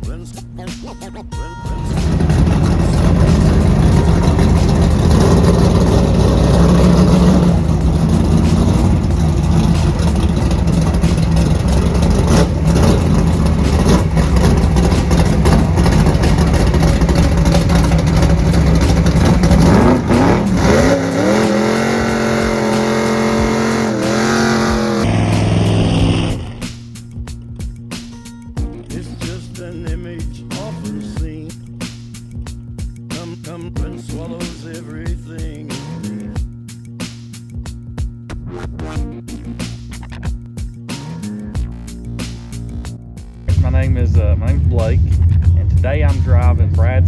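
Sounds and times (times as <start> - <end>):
car engine at full throttle: 1.7 - 26.8, 43.5 - 47.0.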